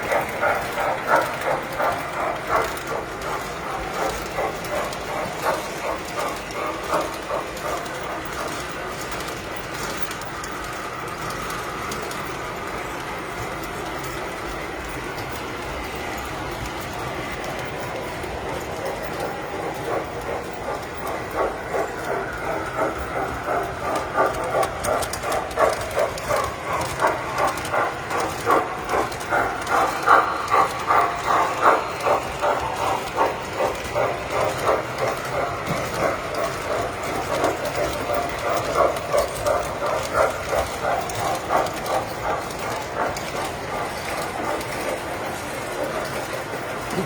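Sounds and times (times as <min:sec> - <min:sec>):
mechanical hum: 0:00.0 - 0:47.0
model train clattering: 0:00.0 - 0:47.0.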